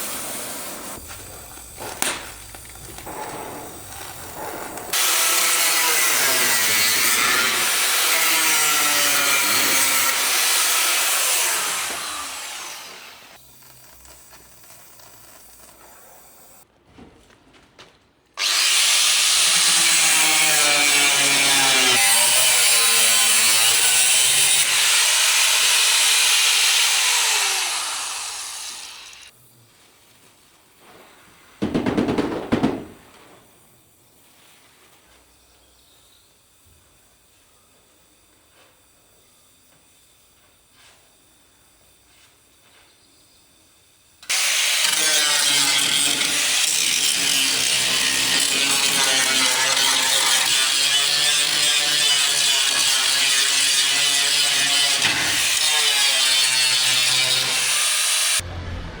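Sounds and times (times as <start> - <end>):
power tool on metal: 0.0 - 15.8, 18.4 - 29.4, 44.2 - 58.4.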